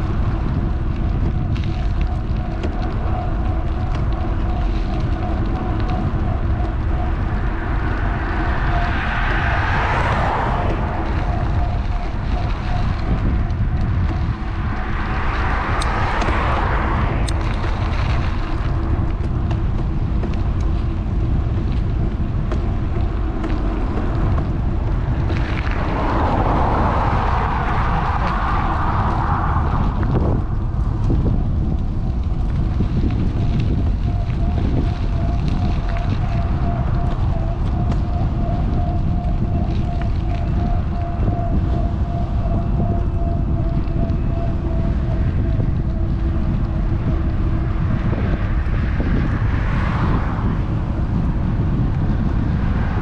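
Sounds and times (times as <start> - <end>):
faint steady whine: 0.0 - 53.0
wind rumbling on microphone: 0.0 - 53.0.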